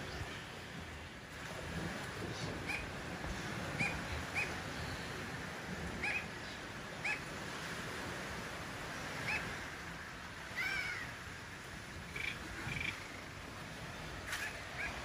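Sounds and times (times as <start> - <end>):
birds chirping: 0.0 - 0.6, 2.2 - 7.3, 11.9 - 13.6.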